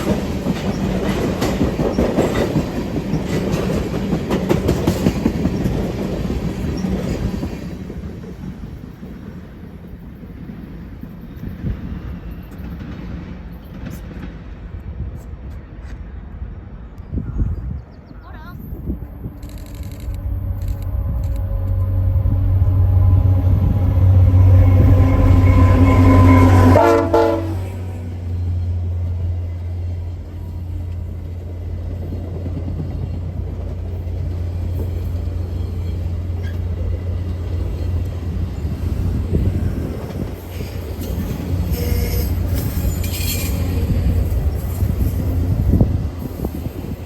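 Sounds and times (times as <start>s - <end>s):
train engine rumble: 0.0s - 47.0s
locomotive air horn chord: 20.0s - 28.0s, 41.6s - 44.0s.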